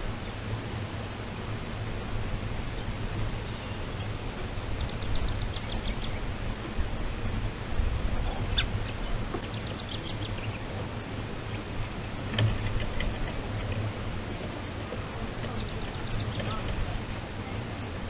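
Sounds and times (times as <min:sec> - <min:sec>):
steady low hum: 0:00.0 - 0:18.0
small birds chirping: 0:01.9 - 0:06.5, 0:08.2 - 0:14.5, 0:15.2 - 0:17.6.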